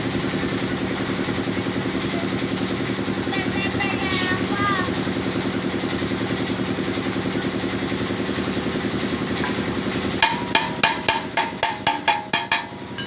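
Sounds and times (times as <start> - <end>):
engine idling: 0.0 - 13.0
hammer blows on metal: 10.2 - 13.0.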